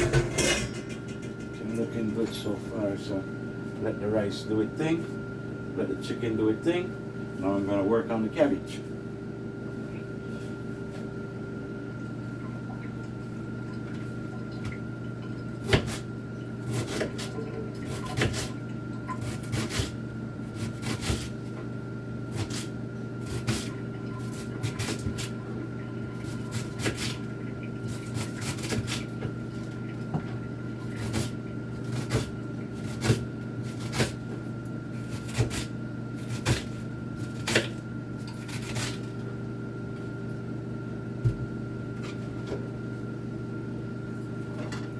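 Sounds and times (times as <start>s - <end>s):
exhaust fan humming: 0.0s - 44.9s
knife chopping cabbage on a board: 15.6s - 17.3s, 17.9s - 18.6s, 19.2s - 21.6s, 22.3s - 23.7s, 24.3s - 25.4s, 26.2s - 27.2s, 27.8s - 29.4s, 30.9s - 34.4s, 35.0s - 39.2s.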